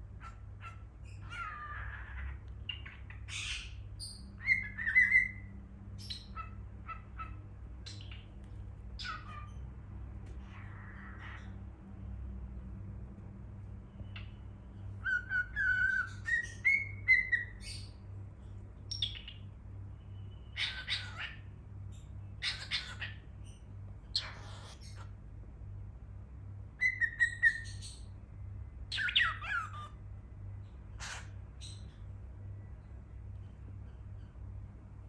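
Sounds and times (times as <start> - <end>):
cockatiel harsh chirps: 9.0 - 9.6, 15.0 - 17.9, 20.6 - 21.4, 22.4 - 23.2, 24.1 - 25.1, 29.0 - 30.0, 31.0 - 31.9
cockatiel whistling: 15.0 - 17.7, 26.8 - 27.8.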